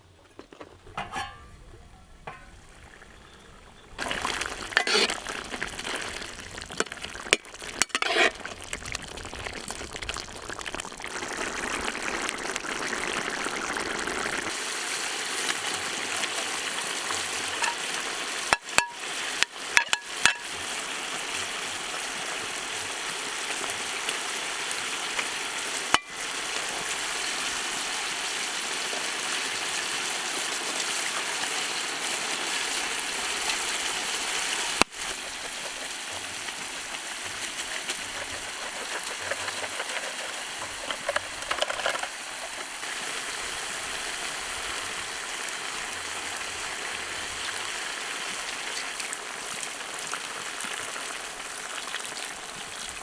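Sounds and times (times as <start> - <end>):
utensil clinking against pot: 0.9 - 1.6, 2.2 - 2.7, 4.3 - 8.7, 17.6 - 17.9, 18.5 - 20.5, 37.8 - 42.8
food sizzling in hot oil: 2.3 - 53.0.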